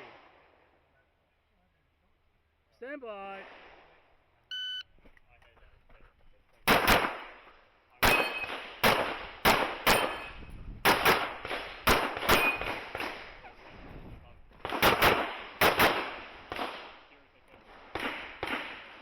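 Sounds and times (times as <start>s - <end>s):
handgun shots: 8.0s - 13.2s, 14.6s - 16.6s.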